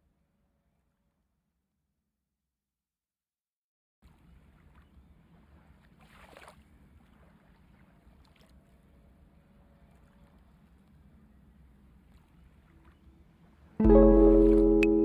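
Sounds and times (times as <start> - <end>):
low hum: 13.8 - 15.0.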